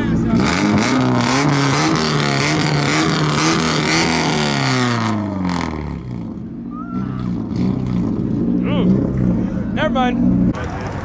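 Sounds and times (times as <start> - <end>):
car engine under throttle: 0.0 - 11.0.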